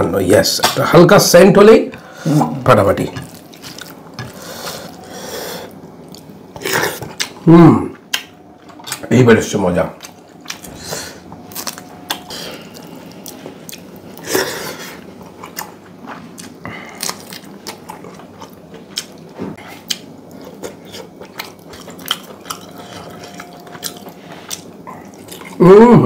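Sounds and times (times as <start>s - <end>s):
chewing and biting food: 11.4s - 14.2s, 15.2s - 25.6s.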